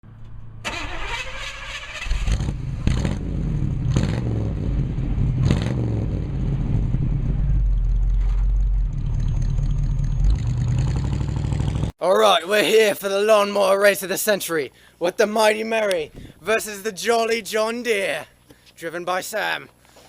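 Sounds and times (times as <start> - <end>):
engine starting and running: 0.1 - 11.9.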